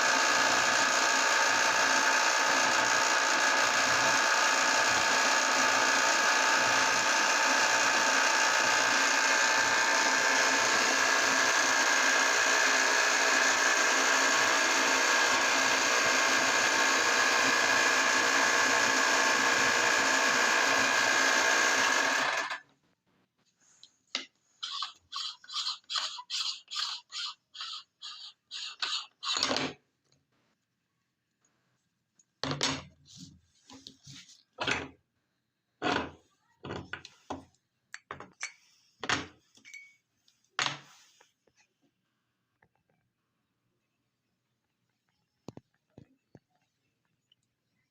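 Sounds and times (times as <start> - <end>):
meat grinder motor running: 0.0 - 22.6.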